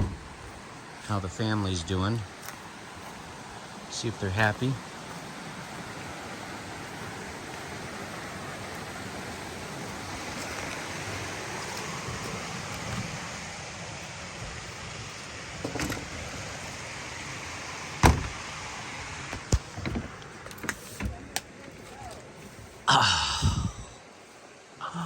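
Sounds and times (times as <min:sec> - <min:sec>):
door latch clicks: 0:00.0 - 0:00.4, 0:18.0 - 0:18.4
vehicle door scraping: 0:00.0 - 0:00.5, 0:18.0 - 0:18.4, 0:19.4 - 0:21.3
steady outdoor hiss: 0:00.0 - 0:25.0.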